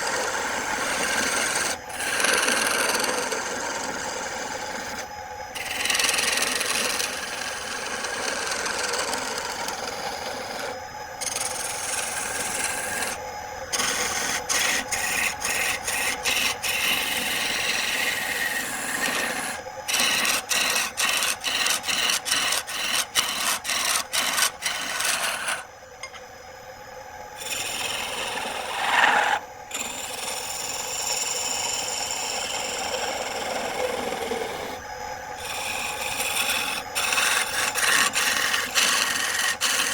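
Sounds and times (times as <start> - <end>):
tool scraping wood on a lathe: 0.0 - 25.7, 27.4 - 39.9.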